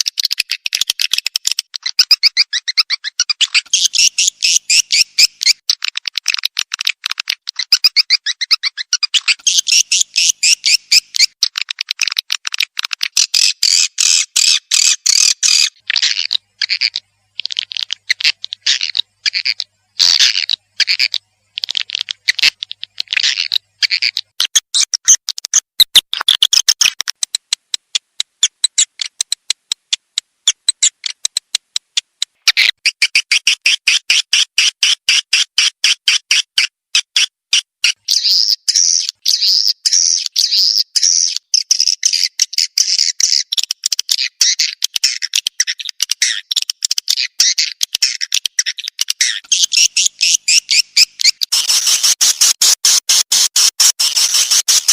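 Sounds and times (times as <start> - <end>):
swiftlets chirping and twittering: 7.8 - 11.4, 47.2 - 54.9.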